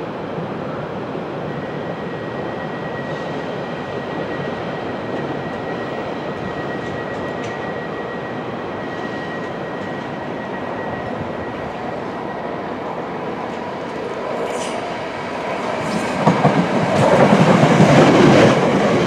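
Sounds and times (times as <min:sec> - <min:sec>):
train drone: 0:00.0 - 0:19.0.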